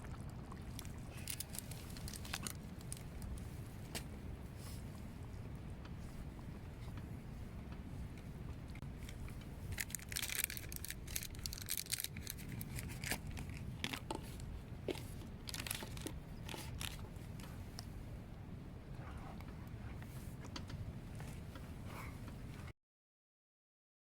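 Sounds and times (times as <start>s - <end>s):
packaging crinkling and tearing: 0.8s - 3.3s, 9.7s - 14.1s, 15.4s - 17.0s.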